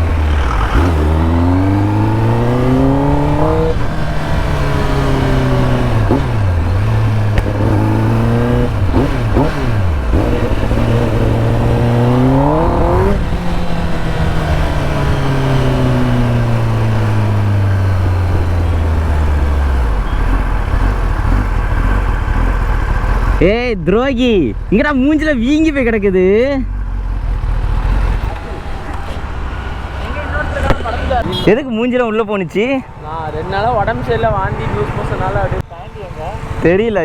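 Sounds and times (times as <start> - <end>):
motorcycle engine revving: 0.0 - 31.5.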